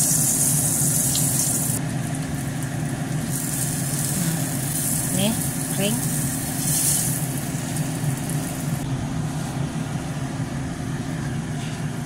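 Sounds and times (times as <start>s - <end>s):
food sizzling in oil: 0.0s - 8.8s
low mechanical hum: 0.0s - 12.0s.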